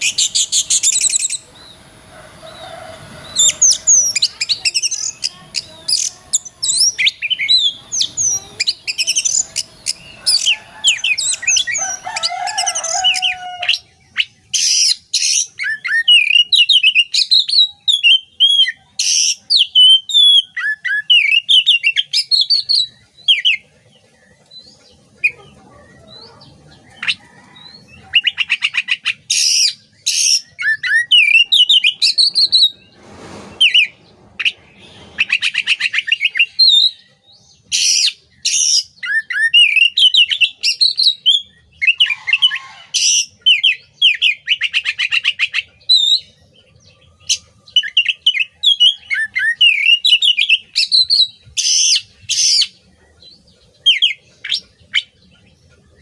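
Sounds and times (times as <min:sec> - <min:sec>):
bird singing whistles and chirps: 0:12.6 - 0:23.6, 0:25.9 - 0:46.4, 0:47.3 - 0:55.1.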